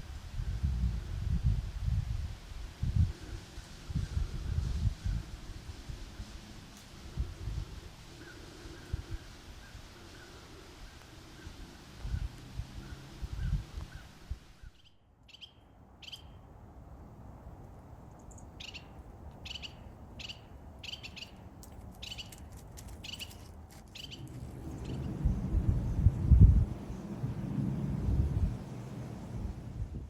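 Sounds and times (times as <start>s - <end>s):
wind rumble on microphone: 0.0s - 14.8s, 21.4s - 30.0s
bird calling: 18.2s - 27.6s.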